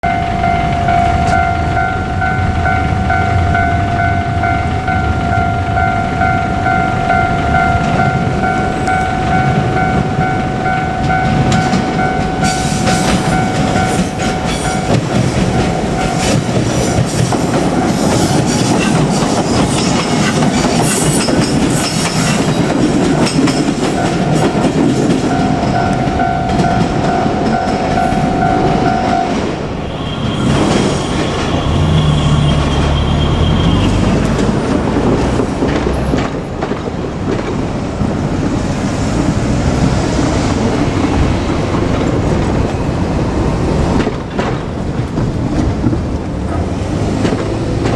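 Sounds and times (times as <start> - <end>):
level crossing warning bell: 0.0 - 31.6
train wheels clattering over rail joints: 7.8 - 29.6, 33.6 - 47.9.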